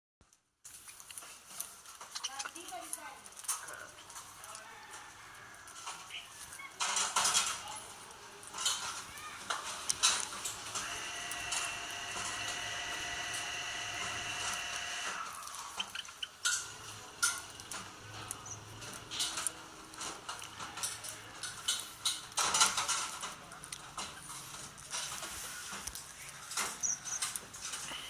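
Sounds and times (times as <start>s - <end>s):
steady high hum: 10.4s - 15.4s.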